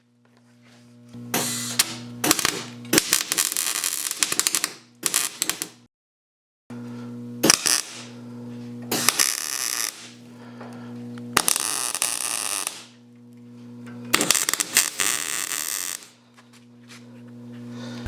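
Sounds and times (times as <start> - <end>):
electrical hum: 0.0 - 3.6, 6.7 - 18.0
welding arc crackle: 1.4 - 5.8, 7.4 - 8.1, 8.9 - 10.2, 11.4 - 13.0, 14.1 - 16.2.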